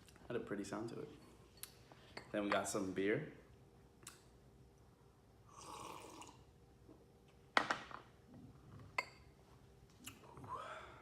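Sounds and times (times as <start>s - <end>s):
person slurping beer: 5.5s - 6.3s.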